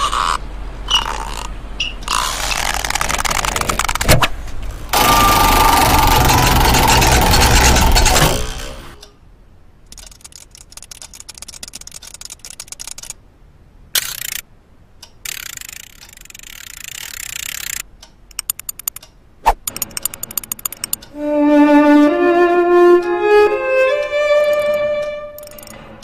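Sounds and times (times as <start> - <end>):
fast dry clicking: 2.6 - 4.1, 9.9 - 13.2, 15.2 - 19.1, 19.7 - 21.1, 25.4 - 25.8
loud burst of noise: 4.9 - 9.0.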